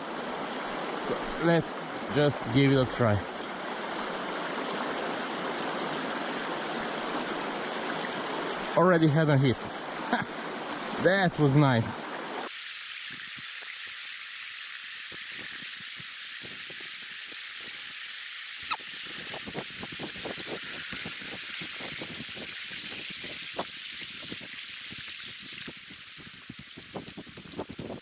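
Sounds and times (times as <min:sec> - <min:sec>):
river current hissing: 0:12.4 - 0:28.0.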